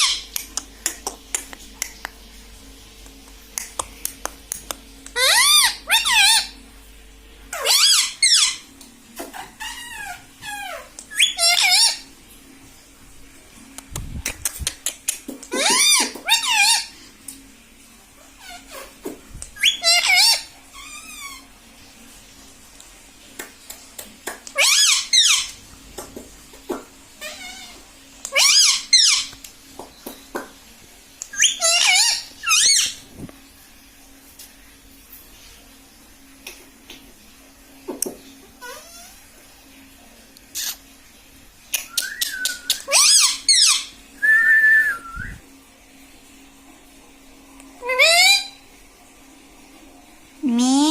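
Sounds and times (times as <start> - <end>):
parrot squeaky chirps: 0.0 - 0.3, 5.2 - 6.6, 7.5 - 8.7, 9.4 - 12.0, 15.5 - 16.9, 19.6 - 21.4, 24.5 - 25.6, 27.2 - 29.3, 31.3 - 33.0, 38.6 - 39.2, 41.9 - 43.9, 47.8 - 48.6.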